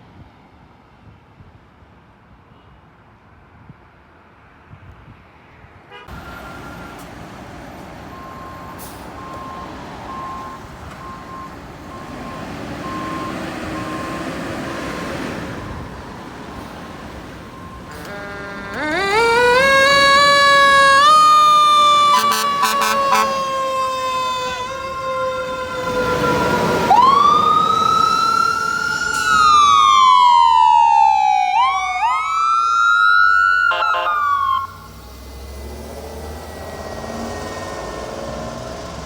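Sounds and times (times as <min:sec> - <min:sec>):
vehicle running noise: 0:04.4 - 0:39.0
fire truck siren wailing: 0:06.1 - 0:39.0.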